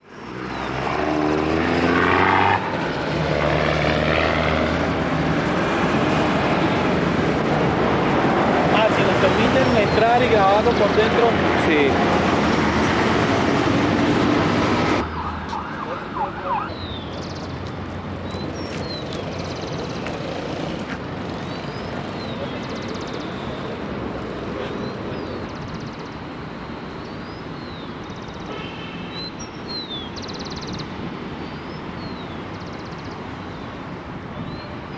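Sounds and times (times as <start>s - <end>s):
road traffic rumble: 0.0s - 34.9s
vehicle engine revving: 0.3s - 18.2s
birds chirping: 0.4s - 34.9s.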